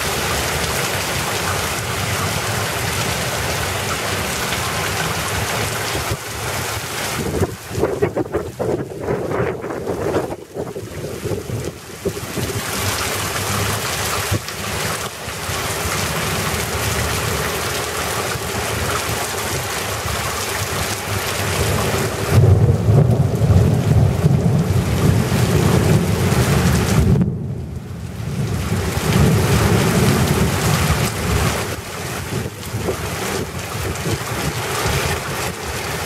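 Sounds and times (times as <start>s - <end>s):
heavy rain pouring: 0.0s - 36.0s
low thunder rumbling: 21.2s - 36.0s.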